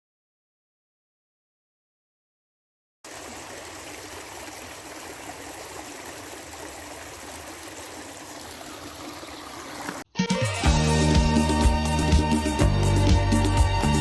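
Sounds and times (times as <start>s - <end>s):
stream water rushing: 3.1s - 10.0s.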